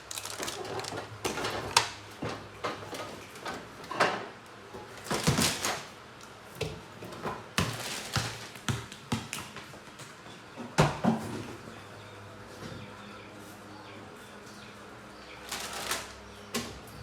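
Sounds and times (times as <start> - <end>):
objects being handled: 0.0 - 1.8.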